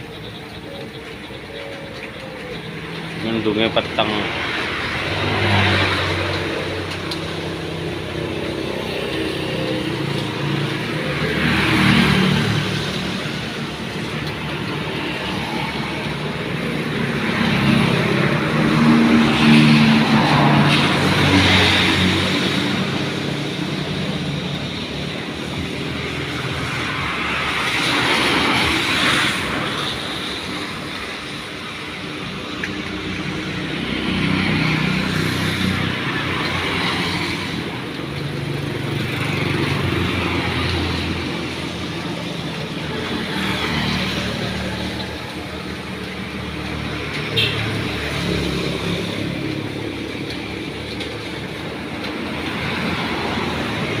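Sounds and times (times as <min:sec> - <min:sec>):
cars and motorbikes passing: 0:00.0 - 0:54.0.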